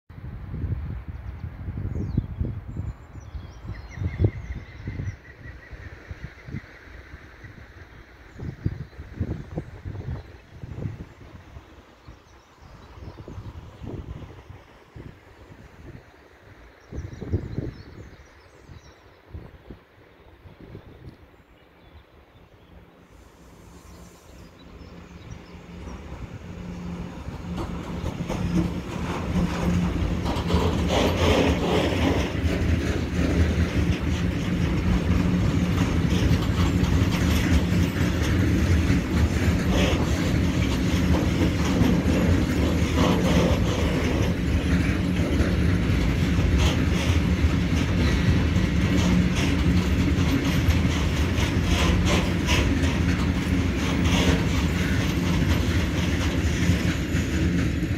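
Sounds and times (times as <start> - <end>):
freight train wheels on rails: 0.2 - 57.9
clickety-clack over rail joints: 22.5 - 57.9.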